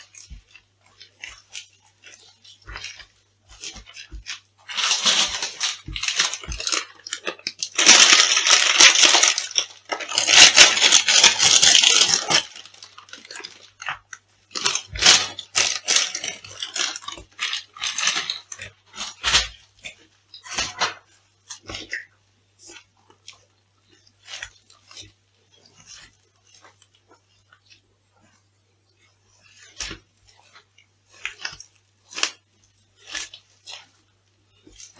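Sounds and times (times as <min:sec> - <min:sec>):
food crunched underfoot: 0:00.0 - 0:19.6.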